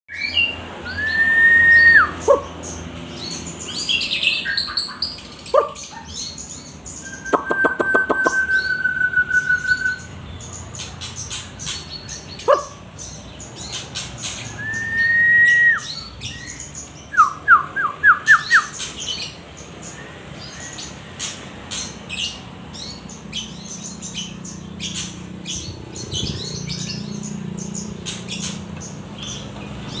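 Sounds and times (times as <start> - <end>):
clear whistled bird notes: 0.1 - 2.4, 6.9 - 10.1, 14.4 - 18.8
songbird chirping: 0.1 - 30.0.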